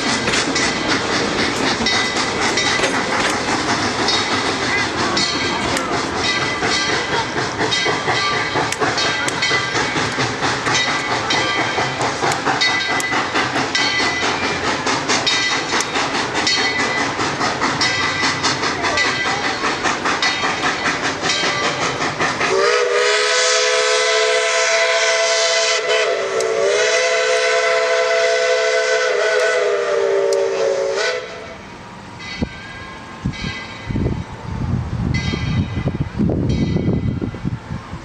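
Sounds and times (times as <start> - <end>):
steam locomotive chuffing: 0.0 - 38.0
steam whistle chord: 22.5 - 31.6.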